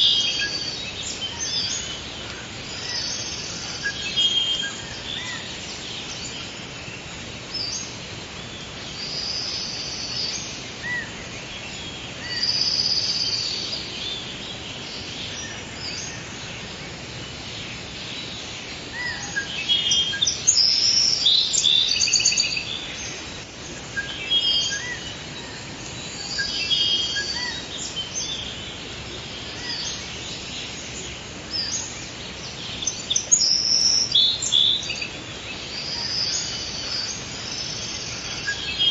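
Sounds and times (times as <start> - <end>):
birds chirping and trilling: 0.0 - 38.9
steady background hiss: 0.0 - 38.9.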